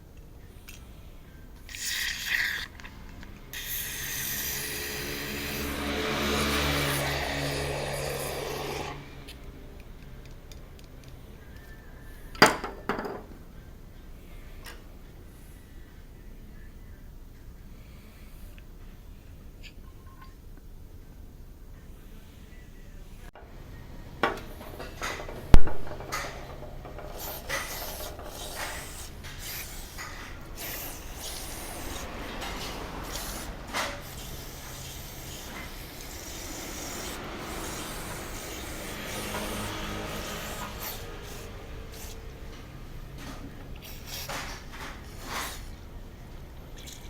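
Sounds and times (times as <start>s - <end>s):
rubbing and scraping strokes: 3.5s - 8.8s, 25.0s - 42.5s
loud scraping sounds: 4.3s - 9.1s.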